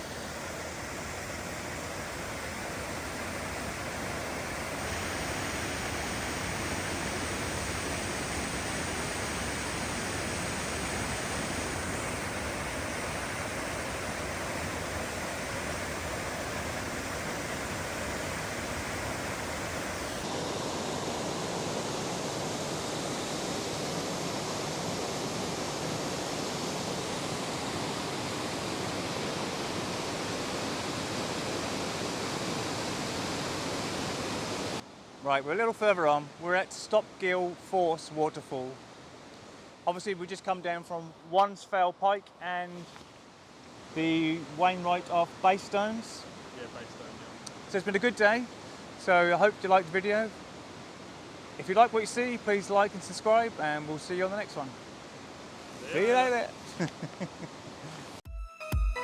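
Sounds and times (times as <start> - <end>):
waterfall rushing: 55.6 - 56.8.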